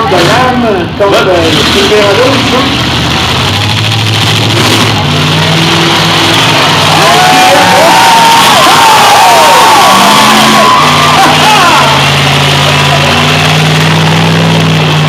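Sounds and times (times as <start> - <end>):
car engines running: 0.0 - 15.0
crowd cheering and whistling: 5.8 - 15.0.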